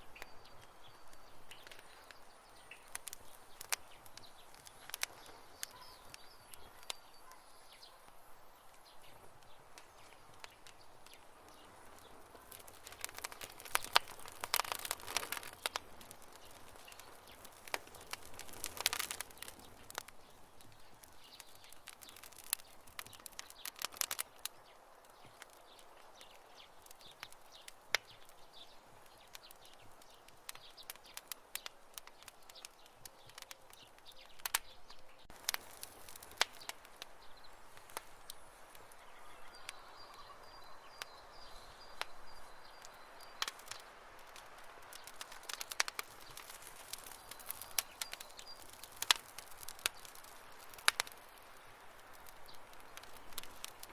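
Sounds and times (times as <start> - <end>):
campfire crackling and popping: 0.0 - 53.9.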